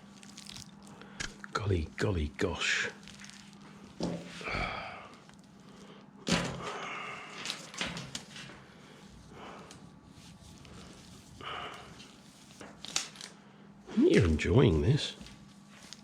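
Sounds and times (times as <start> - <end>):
scraping and crinkling: 3.0 - 4.5, 15.1 - 16.0
wiring harness thudding: 4.0 - 4.4.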